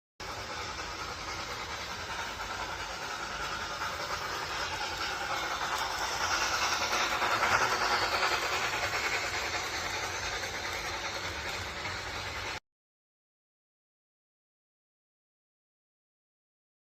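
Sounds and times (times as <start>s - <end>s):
train running past: 0.2s - 12.6s.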